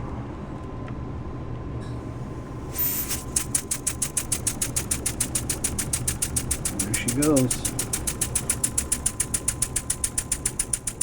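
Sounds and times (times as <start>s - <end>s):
steam engine exhaust puffs: 2.7s - 11.0s.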